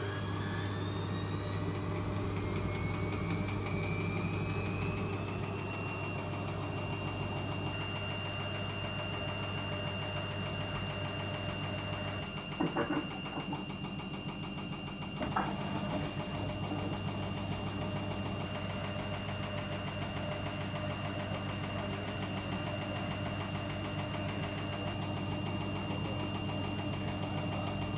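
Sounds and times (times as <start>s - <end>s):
washing machine grinding and rattling: 12.0s - 18.9s.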